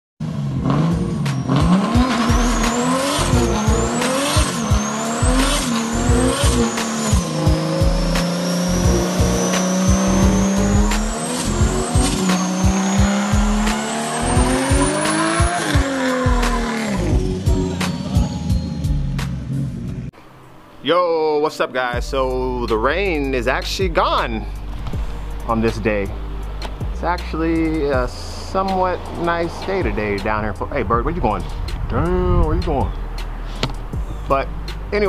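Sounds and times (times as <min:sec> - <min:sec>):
car engine revving hard: 0:00.2 - 0:19.8
music beat: 0:00.6 - 0:20.1, 0:22.0 - 0:35.0
high whine: 0:01.2 - 0:20.2.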